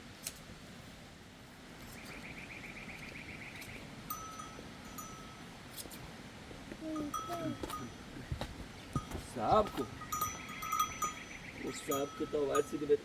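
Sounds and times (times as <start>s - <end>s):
sheep bells ringing: 4.1s - 5.5s, 6.9s - 8.1s, 8.9s - 13.0s.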